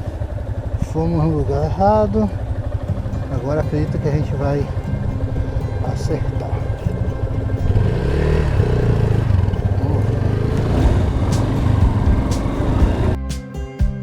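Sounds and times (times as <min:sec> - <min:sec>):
motorcycle engine running: 0:00.0 - 0:13.2
background music: 0:02.9 - 0:14.0.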